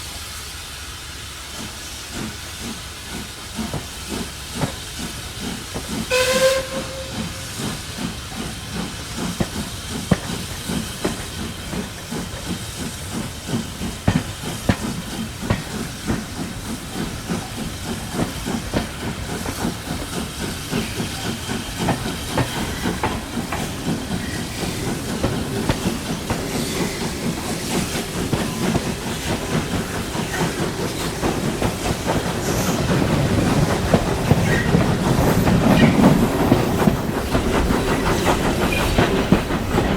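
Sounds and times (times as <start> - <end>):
rhythmic train clatter: 0.0 - 39.9
steam hiss: 0.0 - 39.9
steam whistle toot: 6.1 - 7.6.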